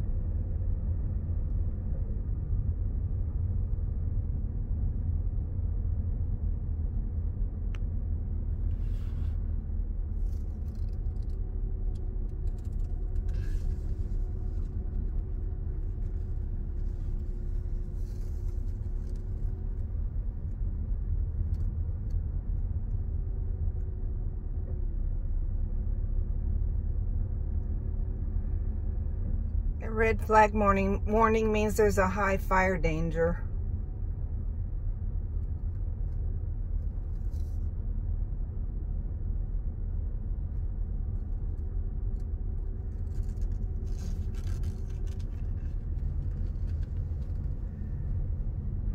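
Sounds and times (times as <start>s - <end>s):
faint hum: 0.0s - 48.9s
road and engine rumble: 6.7s - 33.5s, 40.8s - 48.9s.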